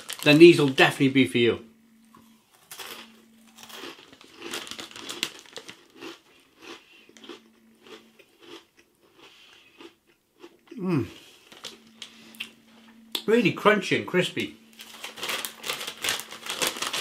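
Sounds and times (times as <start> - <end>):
crunching and chewing: 2.1 - 10.8, 14.8 - 17.0.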